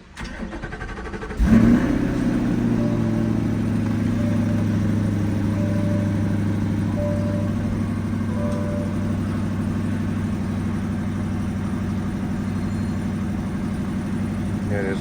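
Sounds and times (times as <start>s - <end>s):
car engine starting and idling: 0.0s - 15.0s.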